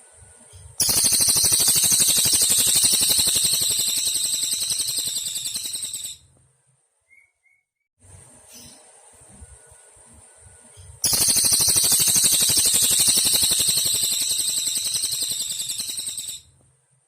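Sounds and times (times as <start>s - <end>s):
bird high-pitched trill: 0.8s - 6.2s, 11.0s - 16.5s
faint high insect buzz: 11.0s - 16.4s.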